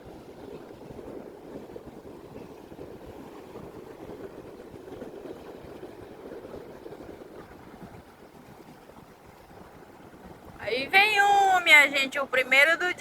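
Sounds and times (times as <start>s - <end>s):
sea surf: 0.0s - 13.0s
wind: 0.0s - 13.0s.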